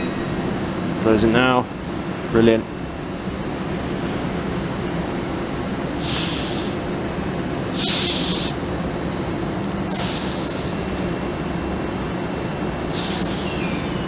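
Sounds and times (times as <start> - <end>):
train humming: 0.0 - 14.0
air hiss bursts: 6.0 - 6.8, 7.7 - 8.6, 9.9 - 11.0, 12.9 - 13.8.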